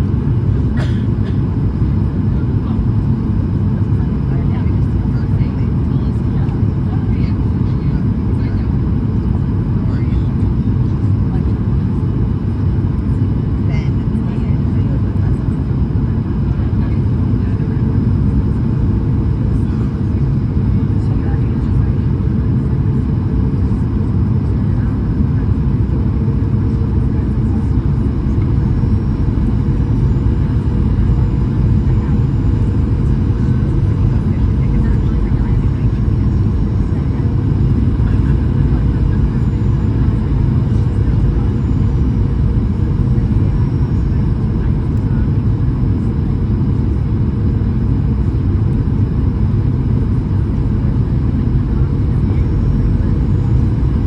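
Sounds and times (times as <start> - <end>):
jet engines rumbling: 0.0 - 54.0
faint steady hum: 25.4 - 45.1.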